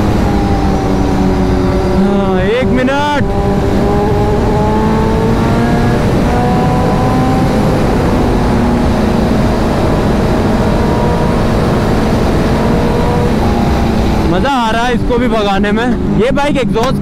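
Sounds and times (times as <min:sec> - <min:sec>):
motorcycle engine cruising: 0:00.0 - 0:17.0
wind rush on microphone: 0:00.0 - 0:17.0.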